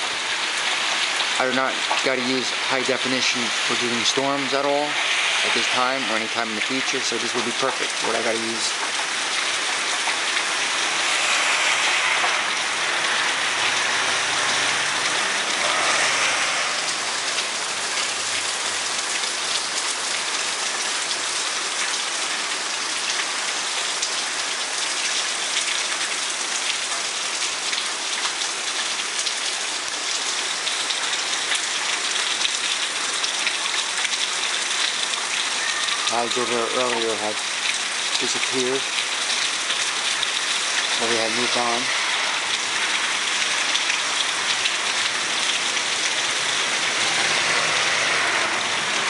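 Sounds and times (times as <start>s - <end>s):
rain on a flat roof: 0.0s - 49.0s.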